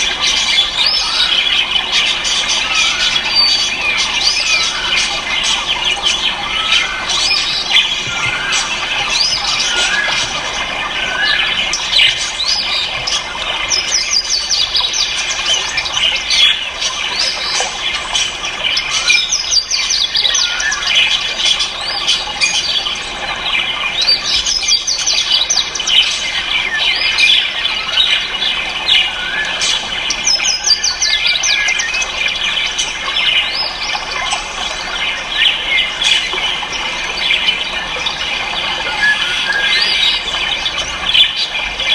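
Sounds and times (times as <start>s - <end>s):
caged birds chirping: 0.0s - 41.9s.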